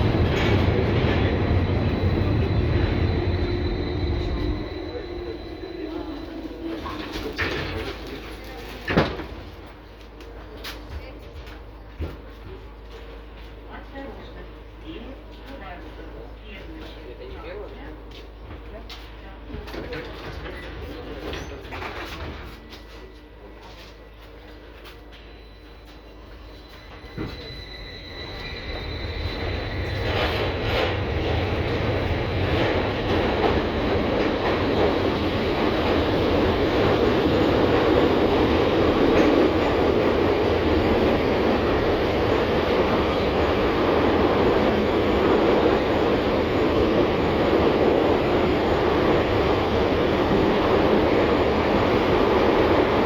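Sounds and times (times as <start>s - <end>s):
tram thump: 0.0s - 9.8s, 29.4s - 53.0s
tram running on rails: 0.0s - 53.0s.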